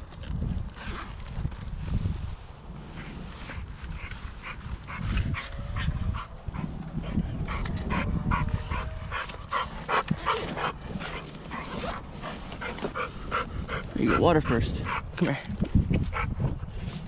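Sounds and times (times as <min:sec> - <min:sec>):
dog panting: 0:03.5 - 0:17.0.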